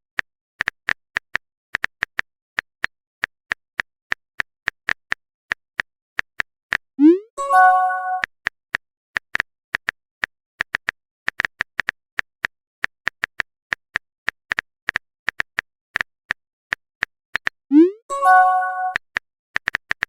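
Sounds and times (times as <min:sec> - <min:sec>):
phone message alert chime: 0:07.0 - 0:08.2, 0:17.7 - 0:19.0.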